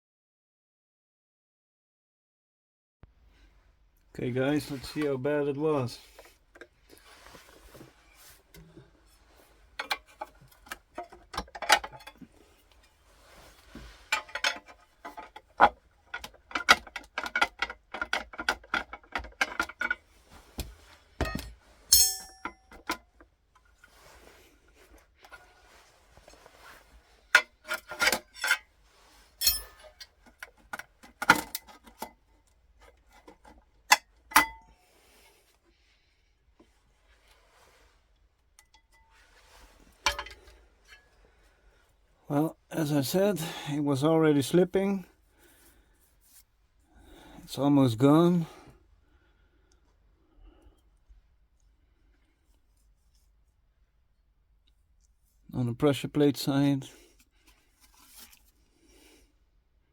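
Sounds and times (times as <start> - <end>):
metal parts clicking and clinking: 14.1 - 20.0, 21.2 - 23.0, 27.7 - 28.6, 29.4 - 30.6
sharp metallic clinks: 21.9 - 22.6, 29.4 - 29.8.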